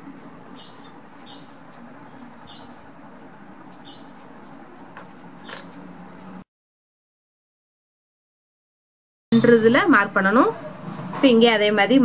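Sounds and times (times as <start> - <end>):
small bird chirping: 0.5 - 2.9, 3.8 - 4.2.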